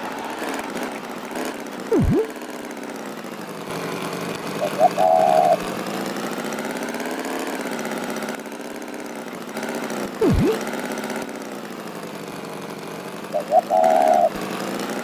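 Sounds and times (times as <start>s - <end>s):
tractor engine running: 0.0s - 15.0s
quick swooping sound: 1.9s - 2.3s, 10.2s - 10.6s.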